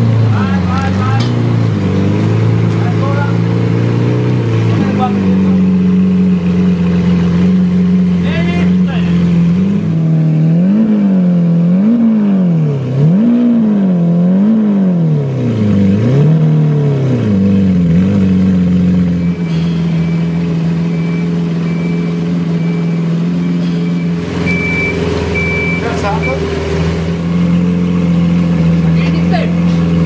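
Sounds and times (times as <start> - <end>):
car engine revving and idling: 0.0 - 30.0
high electronic beep: 19.0 - 26.5.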